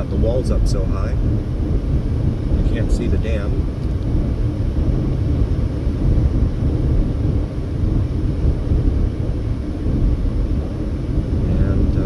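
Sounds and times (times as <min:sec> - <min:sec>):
car engine: 0:00.0 - 0:12.0.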